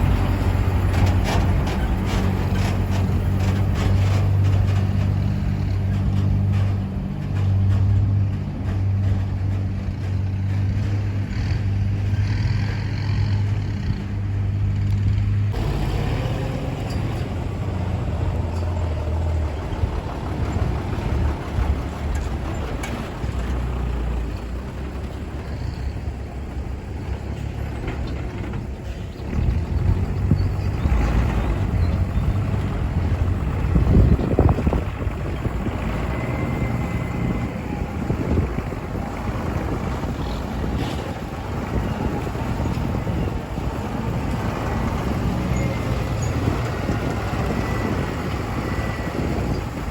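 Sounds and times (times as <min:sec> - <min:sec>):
diesel truck engines humming: 0:00.0 - 0:49.9
trucks rumbling on the move: 0:00.0 - 0:49.9.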